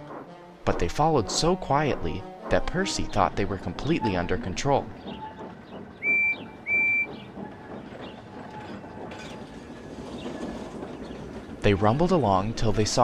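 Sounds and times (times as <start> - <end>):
faint rumble of train rolling: 0.0 - 13.0
steam locomotive whistle toots: 6.0 - 7.6.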